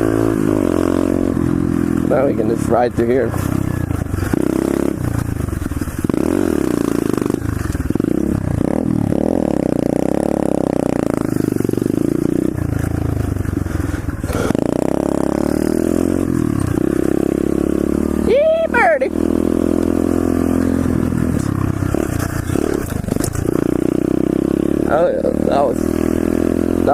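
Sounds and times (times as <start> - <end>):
pit bike engine revving: 0.0 - 26.9.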